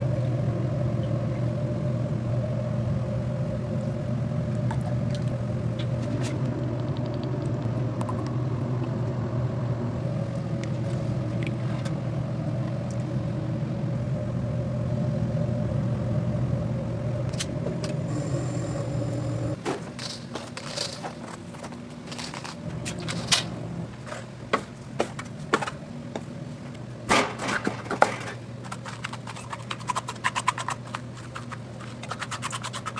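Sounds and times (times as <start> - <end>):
low mechanical hum: 0.0 - 32.9.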